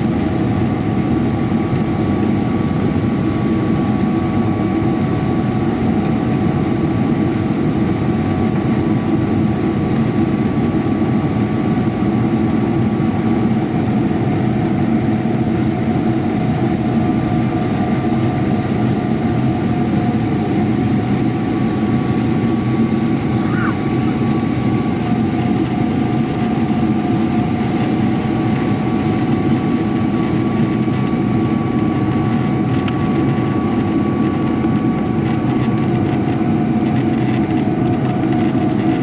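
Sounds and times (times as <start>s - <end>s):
airliner cabin engine rumble: 0.0s - 39.0s
whining tones: 23.1s - 24.9s.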